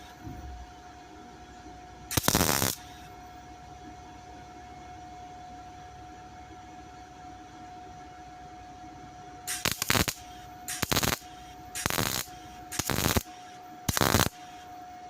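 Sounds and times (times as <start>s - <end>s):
welder crackling bursts: 2.1s - 3.0s, 9.5s - 14.6s.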